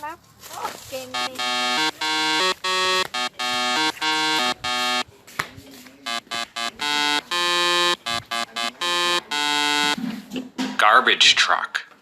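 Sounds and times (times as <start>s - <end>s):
buzzy electronic beeping tune: 1.1s - 5.0s, 6.1s - 10.0s.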